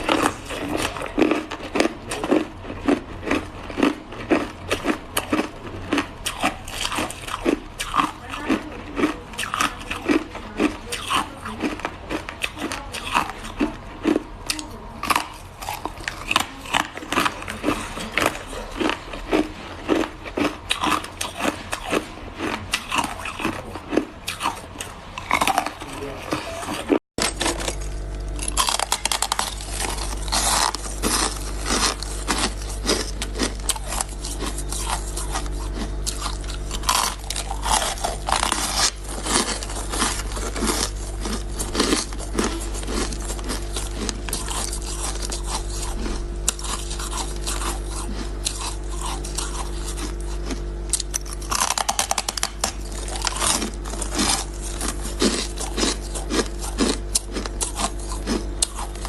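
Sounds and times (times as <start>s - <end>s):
ice crunching while chewed: 0.0s - 59.0s
steady low hum: 0.0s - 59.0s.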